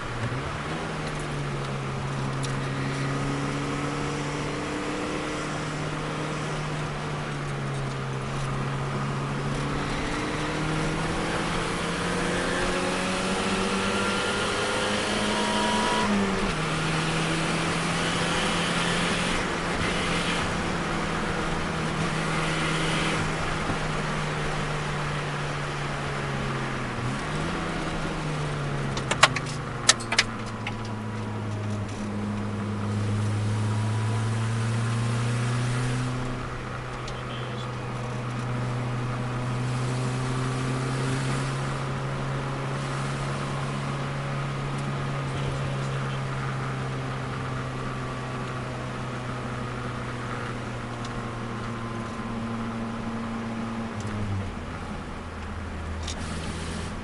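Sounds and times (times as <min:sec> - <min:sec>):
car engine running: 0:00.0 - 0:57.0.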